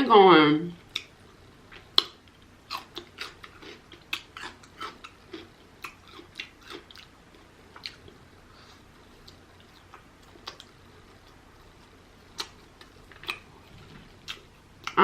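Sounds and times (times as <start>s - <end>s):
mouth chewing clicks: 0.9s - 7.1s.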